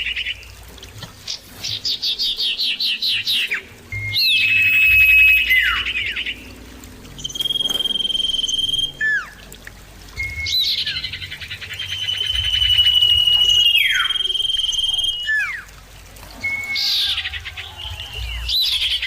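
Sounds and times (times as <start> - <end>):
bird whistling: 2.9 - 6.5, 7.2 - 9.4, 10.2 - 15.7, 16.4 - 19.0.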